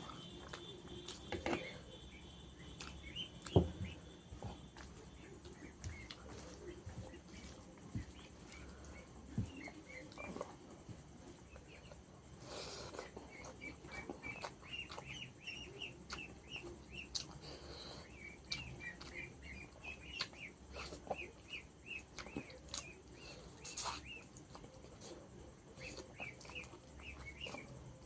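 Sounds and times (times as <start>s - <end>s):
person eating mouth sounds: 23.5s - 24.6s.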